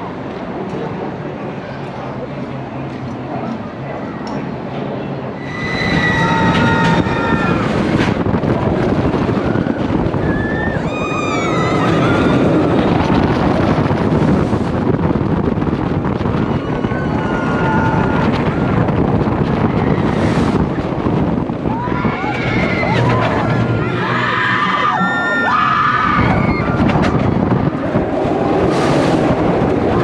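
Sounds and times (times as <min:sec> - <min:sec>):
roller coaster train rushing: 0:00.0 - 0:30.0
riders screaming: 0:05.4 - 0:07.9, 0:10.2 - 0:12.8, 0:21.7 - 0:26.9
wind on microphone: 0:05.6 - 0:30.0.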